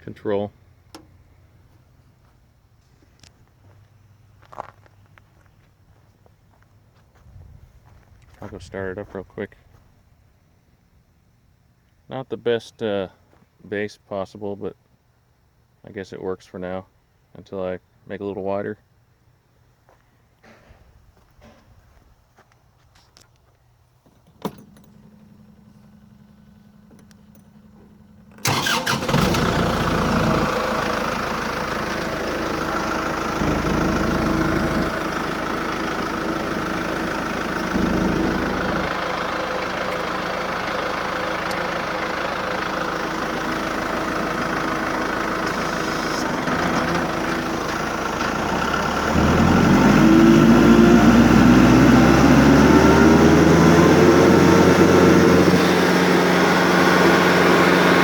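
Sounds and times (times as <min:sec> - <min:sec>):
tractor engine idling: 0:24.1 - 0:58.0
rising machine whine: 0:25.7 - 0:58.0.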